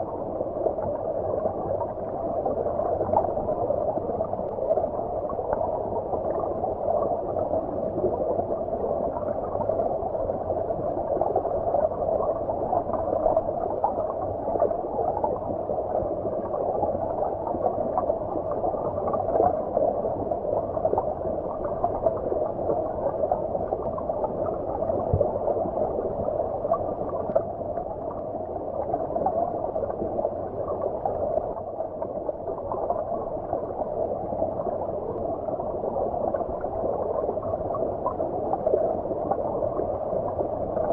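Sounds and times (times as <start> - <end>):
muffled underwater stream rush: 0.0 - 40.9.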